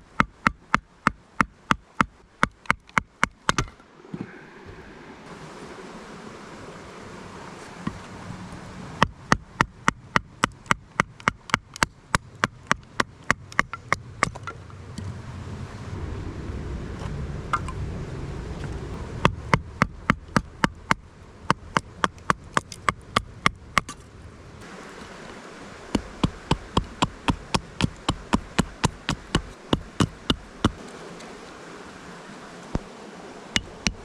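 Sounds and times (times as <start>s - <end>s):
rapid sharp tapping: 0.0s - 3.7s, 9.0s - 14.6s, 19.0s - 24.0s, 25.9s - 30.8s.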